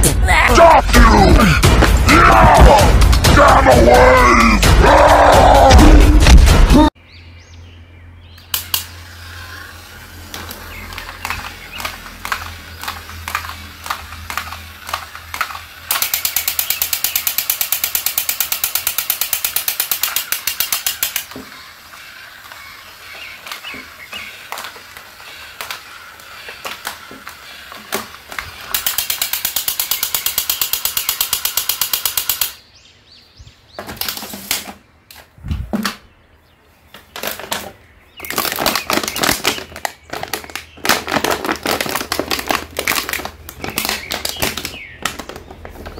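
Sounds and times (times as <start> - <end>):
toy gear motor clicking: 8.4 - 32.6, 38.2 - 45.6
electronic machine-gun rattle: 8.5 - 32.6.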